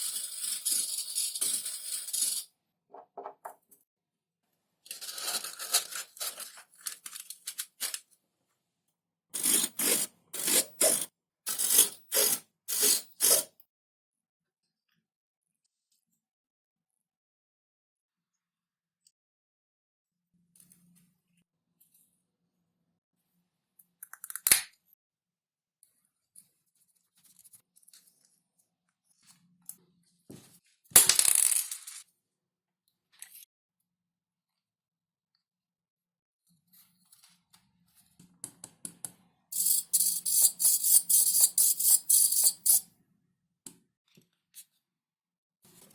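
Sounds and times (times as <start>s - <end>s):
scraping strokes on foam: 9.4s - 13.6s.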